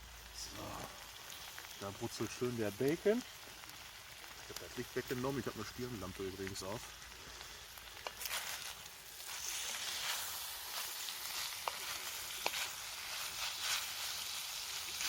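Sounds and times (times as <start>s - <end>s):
bacon sizzling in a frying pan: 0.0s - 15.0s.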